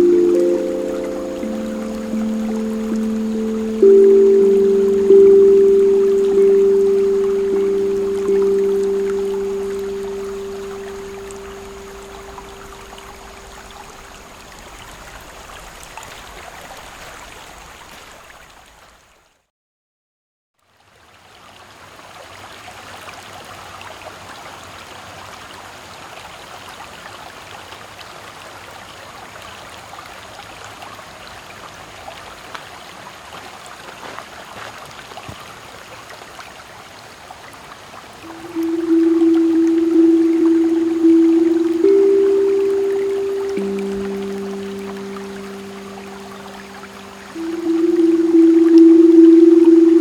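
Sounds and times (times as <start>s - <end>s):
steel tongue drum note: 0.0s - 13.8s, 38.2s - 50.0s
creek babbling over stones: 0.0s - 18.1s, 32.4s - 50.0s.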